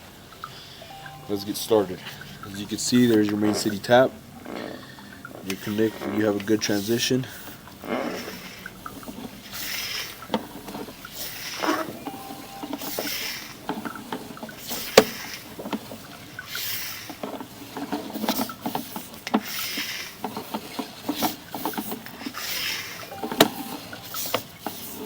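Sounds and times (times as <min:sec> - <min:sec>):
knocks and clicks: 0:23.1 - 0:24.2.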